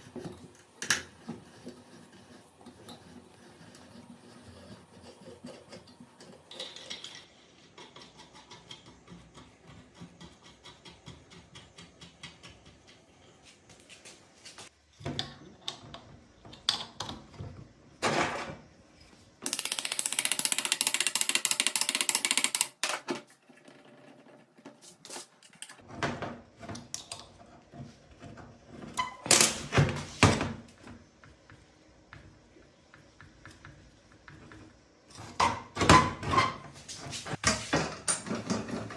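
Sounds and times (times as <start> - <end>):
tools clicking and knocking: 19.4 - 23.2.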